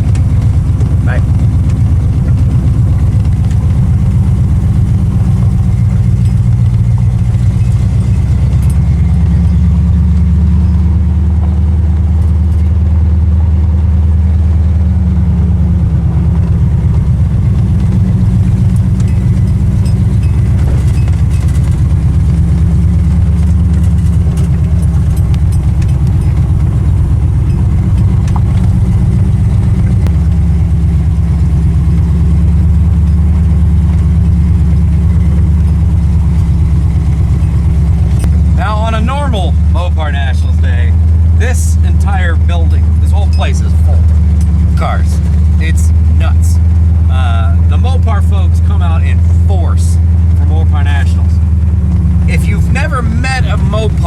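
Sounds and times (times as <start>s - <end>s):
car engine at low speed: 0.0s - 54.0s.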